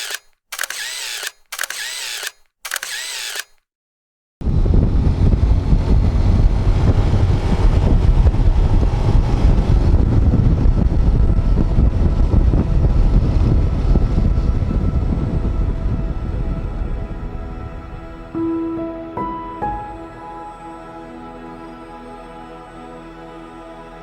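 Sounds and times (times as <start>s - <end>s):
wind rushing over microphone: 4.4s - 20.2s
motorcycle running: 4.5s - 16.9s.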